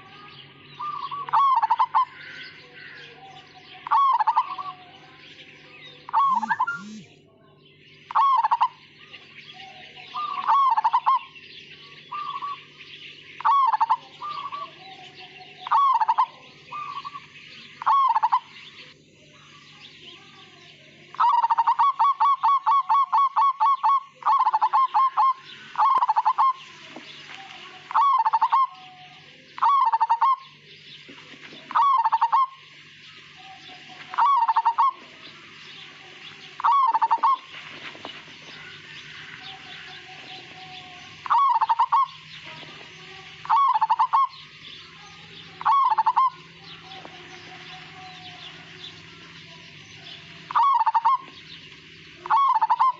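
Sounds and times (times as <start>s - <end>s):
dove cooing: 0.7s - 4.9s, 6.0s - 7.1s, 8.1s - 8.8s, 9.6s - 11.4s, 12.1s - 12.8s, 13.4s - 18.9s, 21.0s - 52.9s
high twittering: 6.0s - 7.2s, 21.1s - 52.9s.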